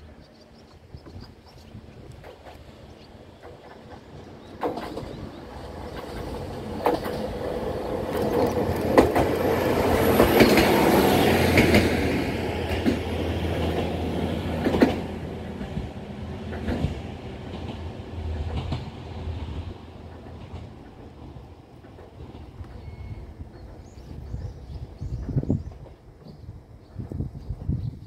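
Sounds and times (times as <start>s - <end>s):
diesel railcar engine running: 0.0s - 27.1s
wheels clicking over rail: 3.4s - 10.9s.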